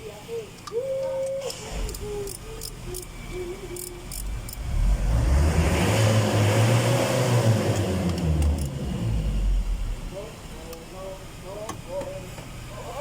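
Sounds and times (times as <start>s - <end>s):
vehicle engine revving: 4.0s - 10.3s.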